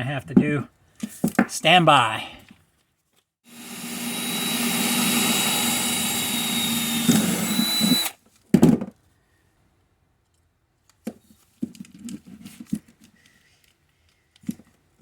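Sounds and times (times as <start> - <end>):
electric drill whining: 3.5 - 8.2.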